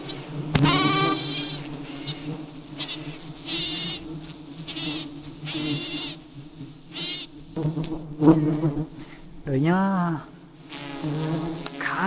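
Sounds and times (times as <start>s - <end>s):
bee swarm humming: 0.0s - 12.0s
high bleat-like calls: 0.5s - 2.3s.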